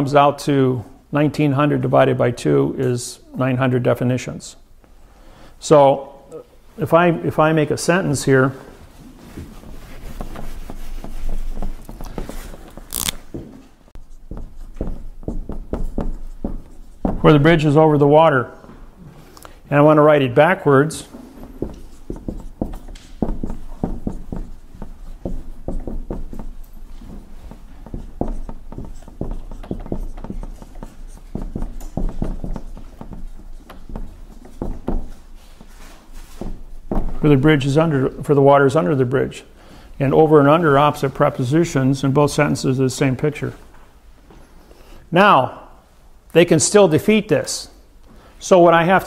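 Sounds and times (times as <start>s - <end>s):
marker scratching on whiteboard: 9.6s - 13.1s, 14.0s - 17.7s, 21.4s - 36.9s.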